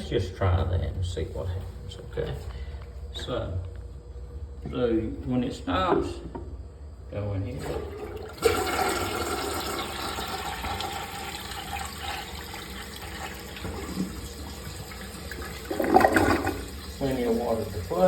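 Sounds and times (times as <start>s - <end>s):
toilet flushing: 7.2s - 18.0s
water running into tank: 7.4s - 18.0s.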